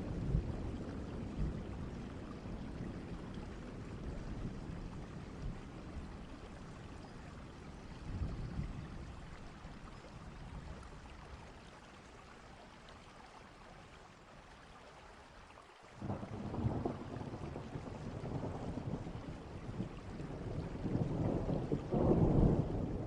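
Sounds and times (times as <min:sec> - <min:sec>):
steady rain: 0:00.0 - 0:23.0
low rolling thunder: 0:16.0 - 0:23.0.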